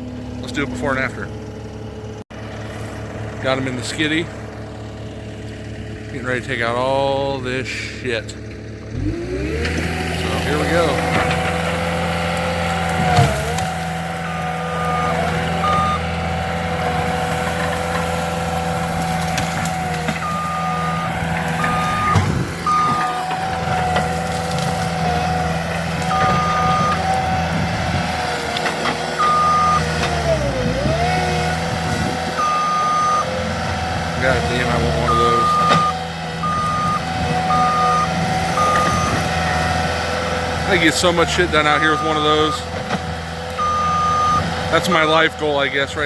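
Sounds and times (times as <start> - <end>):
skid steer engine running: 0.0 - 46.0
reversing alarm beeping: 14.2 - 16.2, 20.1 - 23.8, 26.1 - 27.4, 29.2 - 31.0, 32.4 - 33.3, 34.8 - 39.4, 41.3 - 42.7, 43.6 - 44.5.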